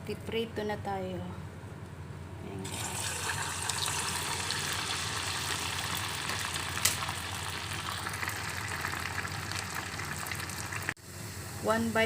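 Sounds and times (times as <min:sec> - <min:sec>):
meat sizzling in hot oil: 0:02.7 - 0:11.0.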